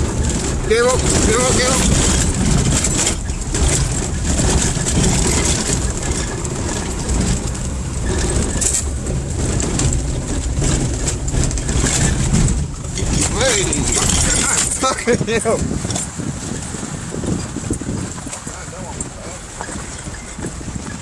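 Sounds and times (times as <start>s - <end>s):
vehicle engine working hard: 0.0s - 21.0s
vehicle knocks and rattles: 0.0s - 21.0s.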